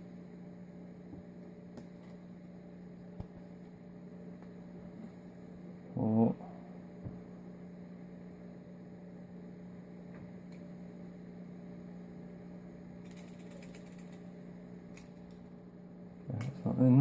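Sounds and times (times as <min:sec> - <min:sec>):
low electrical hum: 0:00.0 - 0:17.0
small metal parts clicking: 0:13.0 - 0:14.2.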